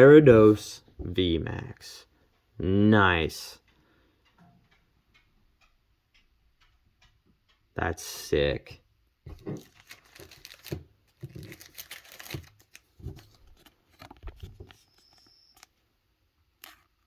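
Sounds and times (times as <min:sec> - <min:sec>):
cards and foil wrapper rustling: 0:09.3 - 0:15.7, 0:16.6 - 0:17.0.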